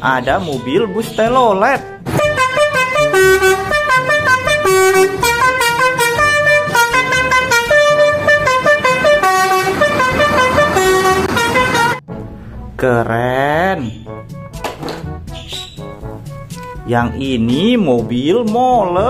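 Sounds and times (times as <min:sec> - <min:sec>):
musical bus air horn: 0:02.1 - 0:12.0.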